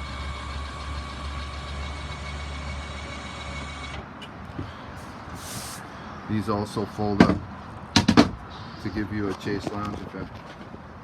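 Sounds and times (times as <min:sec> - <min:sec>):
electric motors humming: 0:00.0 - 0:04.0.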